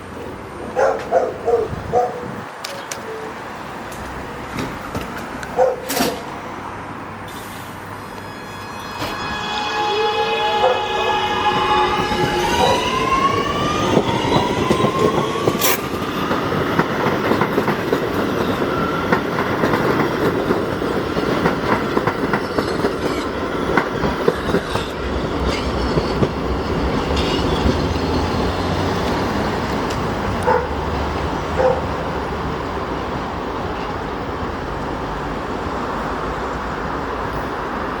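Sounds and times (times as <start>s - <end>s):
train rumble: 0.0s - 38.0s
wheels clicking over rail joints: 3.9s - 6.3s, 13.5s - 31.9s.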